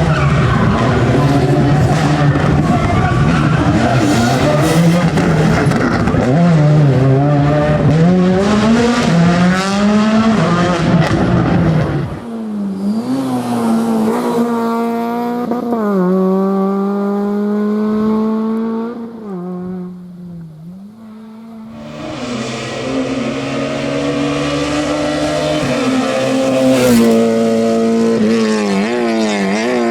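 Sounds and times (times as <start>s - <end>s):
rally car engine revving: 0.0s - 29.9s.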